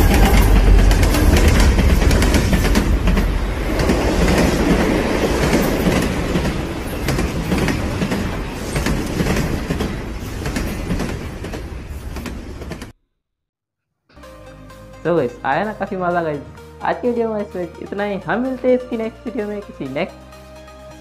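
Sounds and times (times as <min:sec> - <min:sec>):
train rumbling past: 0:00.0 - 0:12.9
wheels clicking over rail joints: 0:00.0 - 0:12.9.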